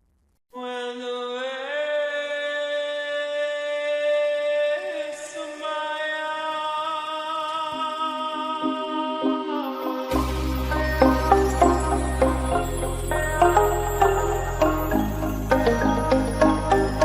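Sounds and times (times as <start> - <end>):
music with long held notes: 7.5 - 17.0.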